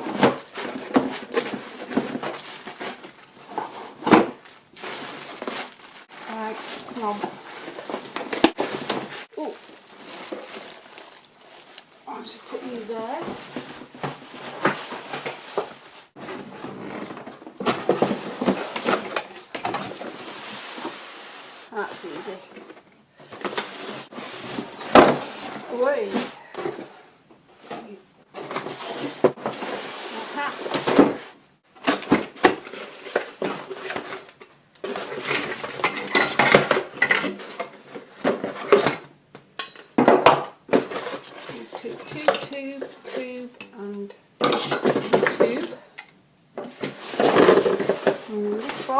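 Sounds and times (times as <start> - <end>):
plastic parts clattering together: 30.6 - 43.8, 44.4 - 48.9.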